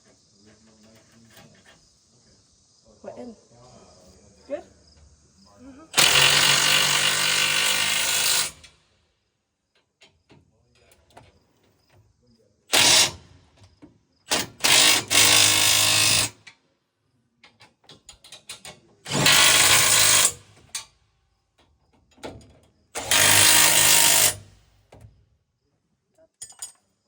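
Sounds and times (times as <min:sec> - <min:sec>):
power tool driving bolts: 0:06.0 - 0:08.7, 0:12.7 - 0:13.3, 0:14.3 - 0:16.5, 0:17.9 - 0:20.9, 0:23.0 - 0:24.6.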